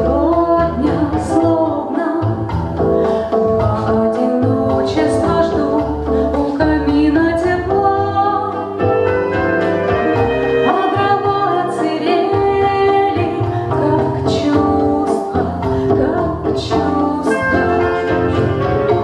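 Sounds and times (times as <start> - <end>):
instrumental accompaniment: 0.0 - 19.0
person singing: 10.1 - 19.0.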